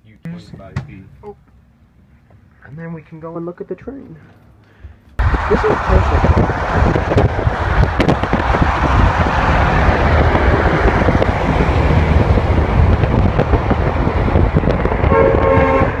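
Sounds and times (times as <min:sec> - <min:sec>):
train passing by: 0:05.2 - 0:16.0
wind buffeting microphone: 0:05.2 - 0:16.0.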